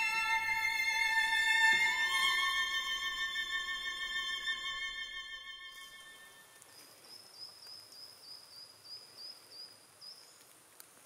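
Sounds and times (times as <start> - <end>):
violin: 0.0 - 6.8
soft outdoor hiss: 0.0 - 11.0.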